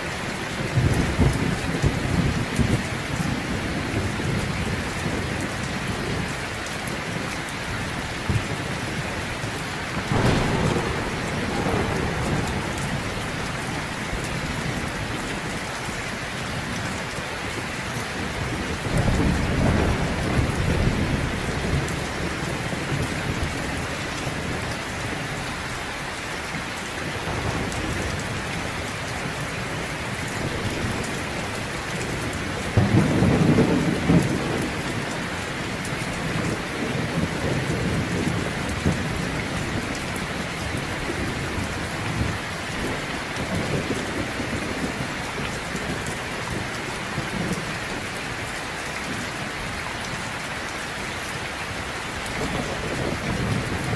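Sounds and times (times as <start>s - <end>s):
heavy rain falling: 0.0s - 53.9s
thunder rumbling: 0.6s - 17.1s, 18.1s - 24.8s, 27.1s - 48.2s, 51.8s - 53.9s
thunderclap: 8.2s - 16.5s, 30.4s - 46.7s.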